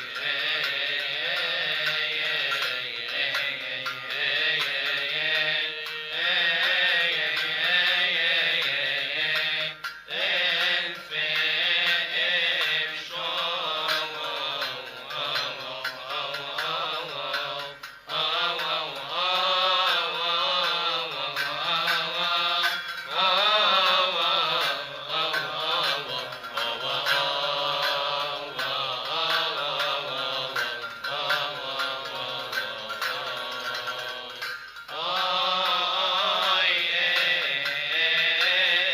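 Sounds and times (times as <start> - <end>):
man chanting a hymn: 0.0 - 38.9.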